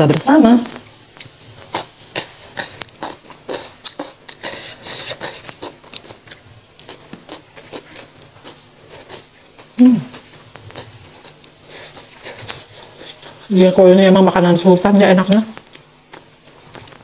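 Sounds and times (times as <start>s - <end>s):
crunchy chewing: 1.1s - 13.5s, 15.2s - 17.0s
wet mouth clicks: 1.2s - 4.5s.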